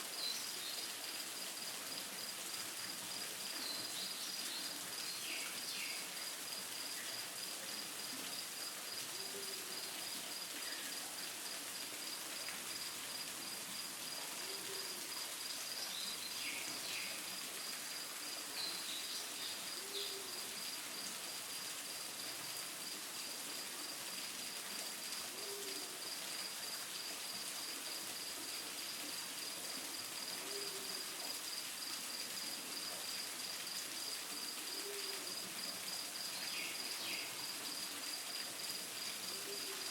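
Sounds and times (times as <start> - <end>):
falling water rushing: 0.0 - 39.9.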